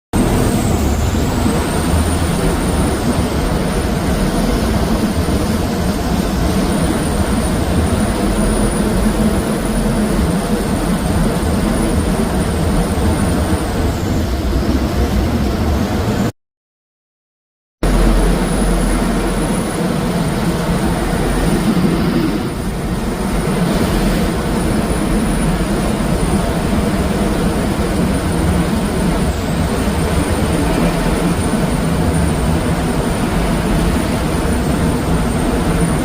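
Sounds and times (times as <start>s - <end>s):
boat engine rumbling: 17.8s - 36.0s
thin high whine: 17.8s - 36.0s.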